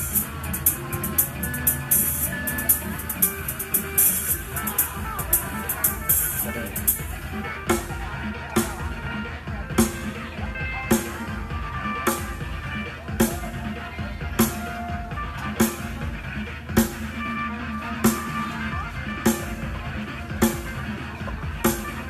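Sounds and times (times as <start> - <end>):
held melody notes: 0.0 - 7.5
slow drum beat: 0.0 - 17.2, 17.9 - 22.0.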